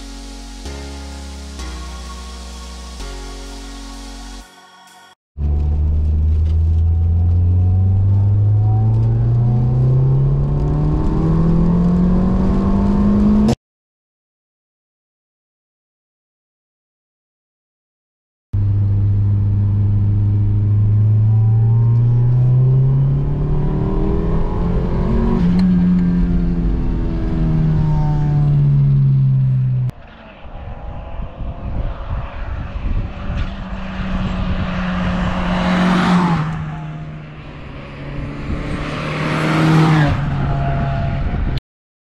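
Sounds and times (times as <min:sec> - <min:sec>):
car engine accelerating: 0:05.4 - 0:13.6, 0:18.6 - 0:41.6
car passing by: 0:29.8 - 0:41.2.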